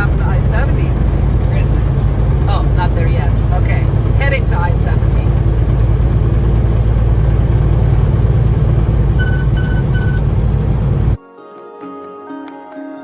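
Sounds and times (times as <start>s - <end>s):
truck engine and road rumble: 0.0s - 11.2s
short electronic beeps: 9.2s - 10.3s.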